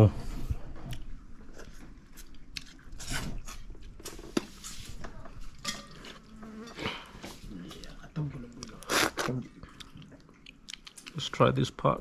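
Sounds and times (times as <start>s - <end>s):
person chewing and biting: 0.9s - 4.2s, 8.6s - 11.2s.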